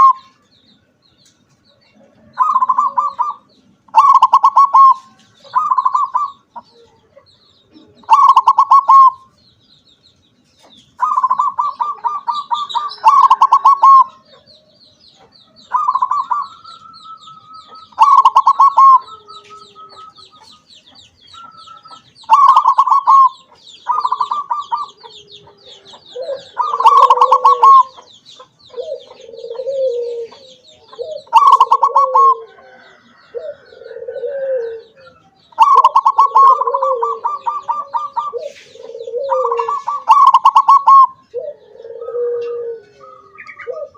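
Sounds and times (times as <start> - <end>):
dove cooing: 0.0 - 0.4, 2.0 - 9.3, 11.0 - 43.9
faint high chirping: 0.0 - 43.9
lower-pitched coos: 15.6 - 20.5, 21.5 - 28.0, 28.8 - 43.9.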